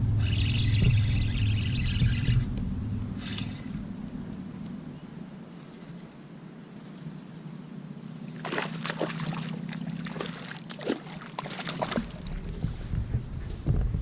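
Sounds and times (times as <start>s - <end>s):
wind rumbling on microphone: 0.0s - 10.4s, 11.5s - 14.0s
water splashing beside a kayak: 8.4s - 13.2s.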